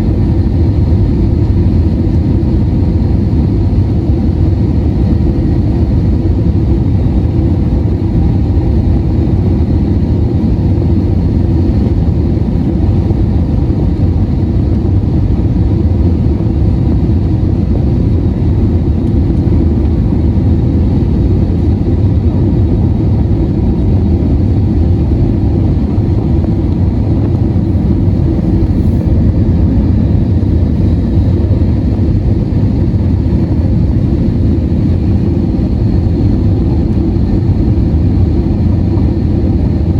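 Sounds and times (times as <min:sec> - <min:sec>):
airliner cabin engine rumble: 0:00.0 - 0:39.9
faint steady whine: 0:00.0 - 0:39.9.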